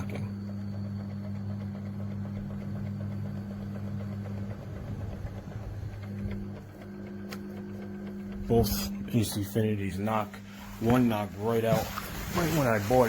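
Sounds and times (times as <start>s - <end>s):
fan motor hum: 0.0s - 13.0s
fan knocking: 3.6s - 13.0s.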